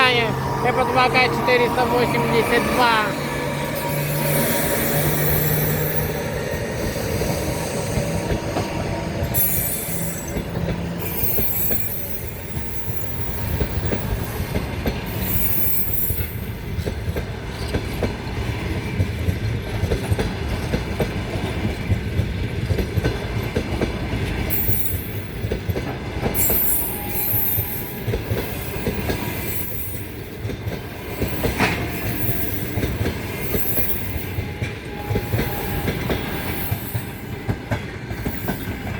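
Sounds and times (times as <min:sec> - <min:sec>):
train coaches rumbling: 0:00.0 - 0:38.9
high-pitched wheel squeal: 0:26.4 - 0:28.1.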